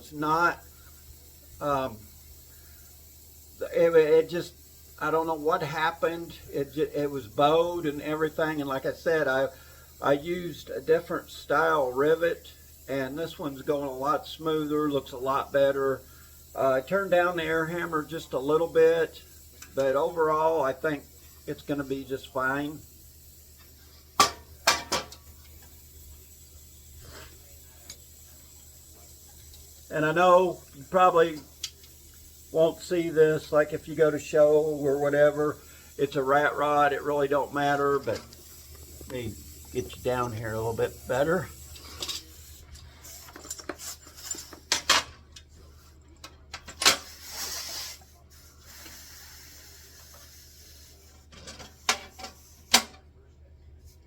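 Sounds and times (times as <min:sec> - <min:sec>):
short hiss: 0:00.6 - 0:05.2, 0:34.6 - 0:46.0, 0:46.6 - 0:52.9
pneumatic air hammer bursts: 0:21.0 - 0:29.9, 0:46.6 - 0:53.0
tools and metal parts clicking: 0:41.7 - 0:45.5.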